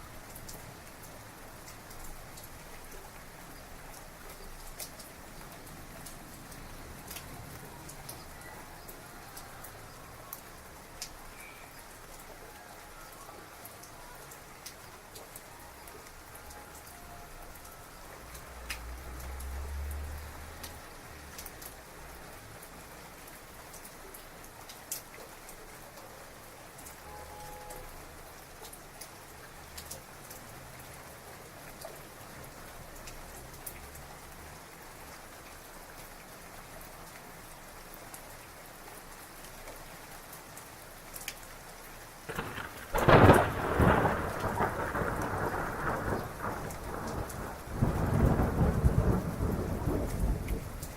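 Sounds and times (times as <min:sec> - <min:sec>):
heavy rain: 0:00.0 - 0:50.9
raindrops ticking close by: 0:00.0 - 0:50.9
distant thunder rumbling: 0:42.3 - 0:50.9.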